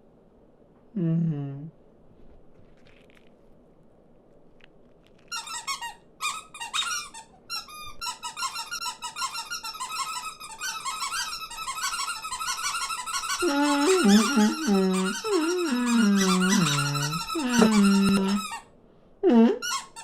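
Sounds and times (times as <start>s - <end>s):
cartoon birds chattering: 13.4s - 18.4s.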